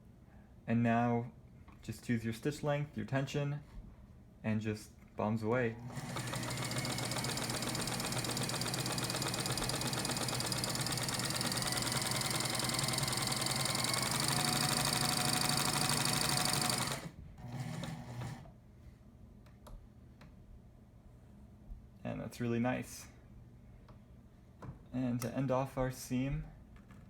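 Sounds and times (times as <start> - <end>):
sewing machine running: 5.7 - 18.5.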